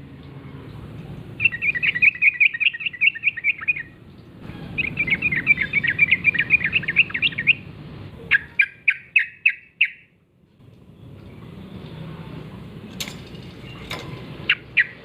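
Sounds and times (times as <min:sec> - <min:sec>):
bird chattering song: 0:01.4 - 0:03.9, 0:04.7 - 0:07.6, 0:08.2 - 0:10.1, 0:13.6 - 0:15.0.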